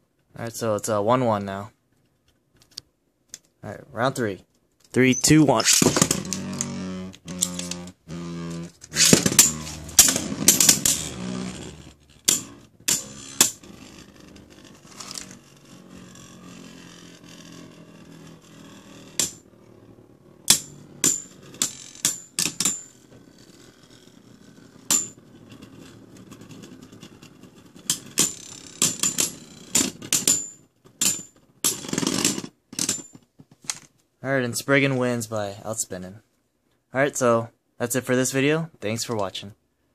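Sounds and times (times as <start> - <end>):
spinning tops whirring: 5.2 - 30.4
plastic tops clacking: 8.6 - 11.2
string launcher rip: 8.6 - 14.2.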